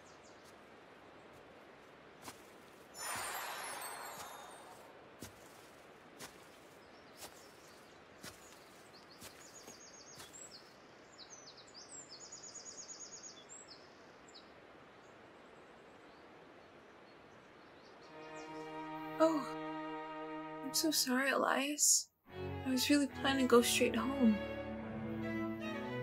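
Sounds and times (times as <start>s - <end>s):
bird singing trilled notes: 17.6s - 19.4s.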